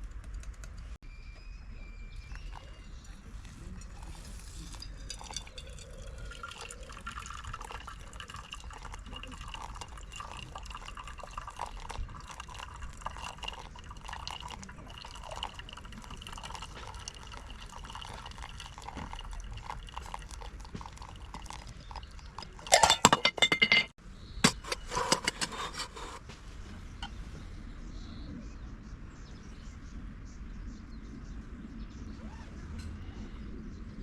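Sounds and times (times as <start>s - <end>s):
clinks: 2.4s - 6.7s, 22.3s - 25.9s
liquid popping and dripping: 4.8s - 23.1s.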